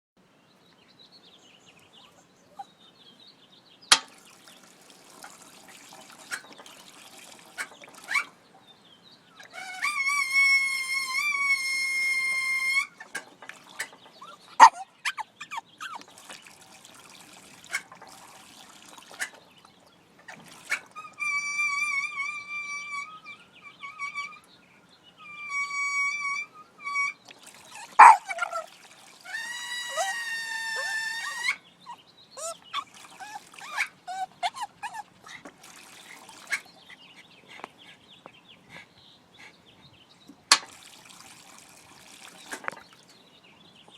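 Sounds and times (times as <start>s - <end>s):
faint water trickle: 0.4s - 43.9s
sharp clicks and knocks: 3.9s - 4.1s.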